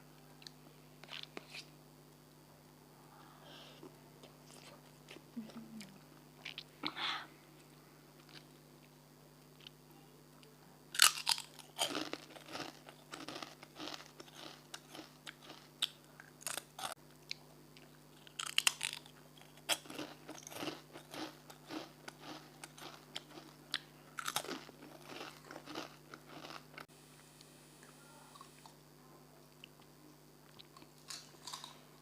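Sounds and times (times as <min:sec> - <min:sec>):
chewing crunchy food: 0:11.0 - 0:26.9, 0:29.5 - 0:31.9.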